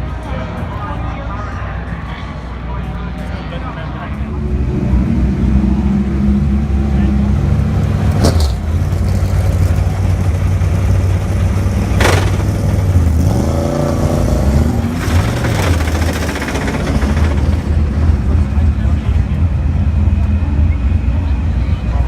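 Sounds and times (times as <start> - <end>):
race car engines: 0.0 - 22.0
sharp crack: 11.9 - 14.1.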